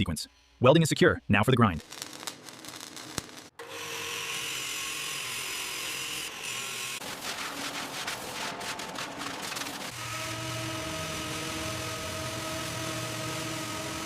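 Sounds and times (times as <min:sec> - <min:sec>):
angle grinder grinding steel: 0:01.8 - 0:07.2.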